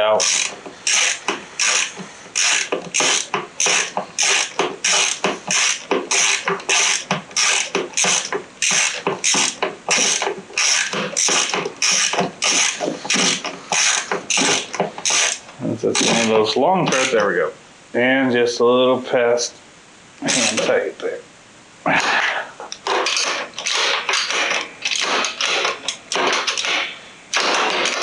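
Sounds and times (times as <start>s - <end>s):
socket ratchet clicking: 0.2s - 15.4s.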